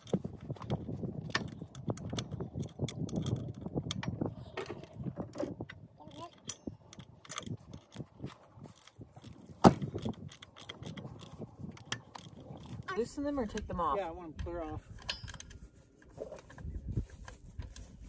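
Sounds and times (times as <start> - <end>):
metal tools clinking: 6.1 - 13.7, 14.4 - 15.6
ratchet wrench clicking: 8.8 - 12.9.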